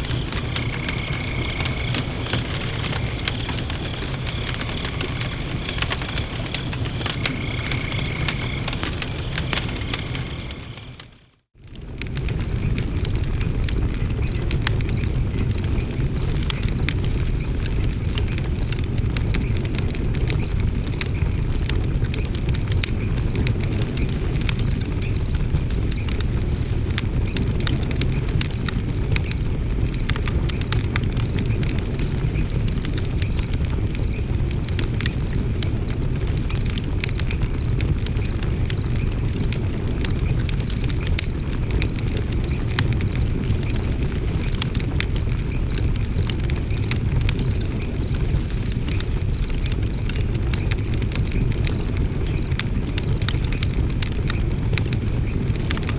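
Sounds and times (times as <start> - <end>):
insect chirping: 0.0 - 11.2, 29.3 - 54.4
wood fire crackling: 0.0 - 55.9.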